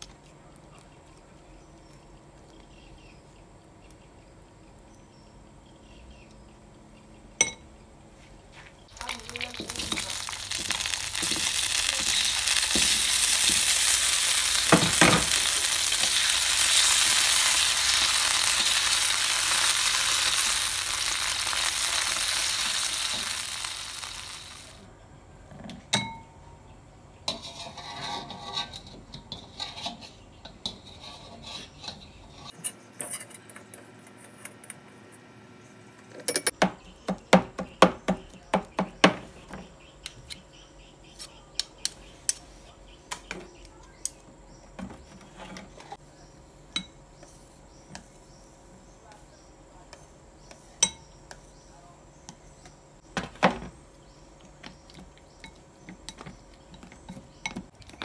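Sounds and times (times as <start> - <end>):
tomatoes sizzling in a wok: 8.9 - 24.9.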